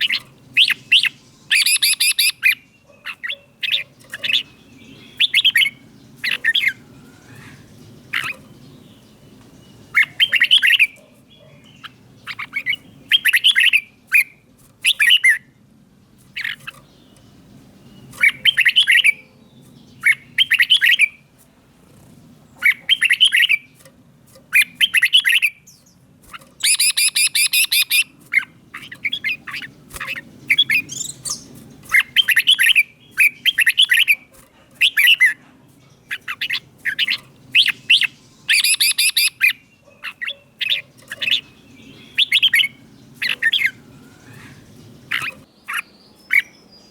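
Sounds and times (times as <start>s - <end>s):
bird singing bright phrases: 0.0s - 46.9s.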